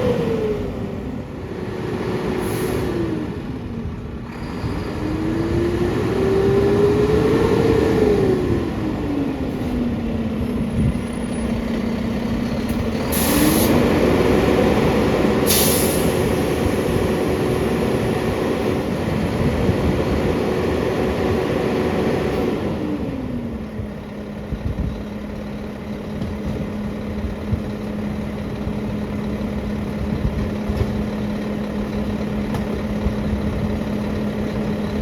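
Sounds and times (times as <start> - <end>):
garbage truck diesel engine: 0.0 - 35.0
air hisses: 15.5 - 16.4.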